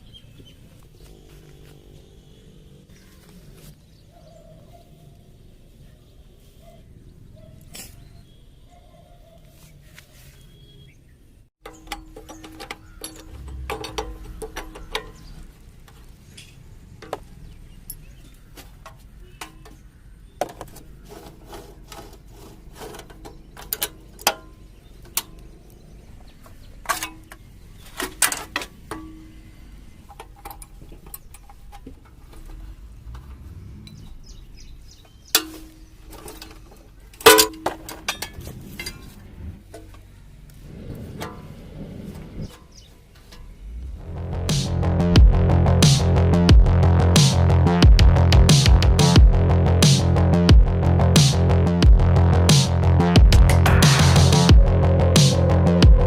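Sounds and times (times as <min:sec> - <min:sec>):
hand tools clinking on metal parts: 0:11.6 - 0:25.5, 0:26.8 - 0:34.0, 0:35.2 - 0:39.1.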